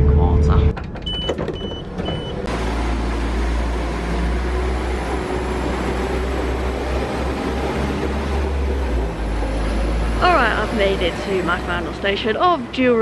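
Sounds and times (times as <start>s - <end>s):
diesel train engine rumble: 0.0s - 13.0s
short high door beeps: 1.0s - 2.5s.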